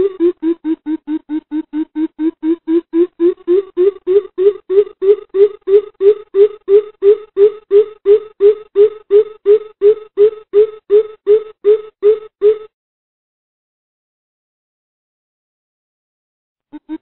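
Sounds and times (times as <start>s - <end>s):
bird calling low boop notes: 0.0s - 12.7s, 16.8s - 17.0s.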